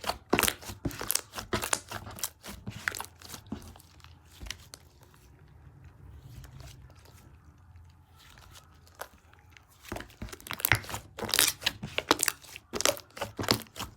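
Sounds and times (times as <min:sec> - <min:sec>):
slime crackling and popping: 0:00.0 - 0:03.8, 0:09.8 - 0:13.9.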